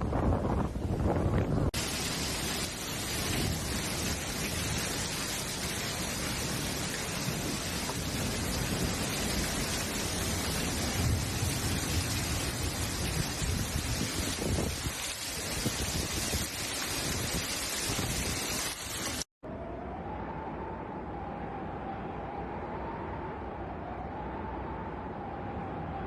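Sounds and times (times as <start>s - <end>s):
wind buffeting microphone: 0.0s - 1.8s, 6.4s - 18.7s
thunder rumbling: 0.0s - 18.7s
heavy rain pouring: 1.7s - 19.3s.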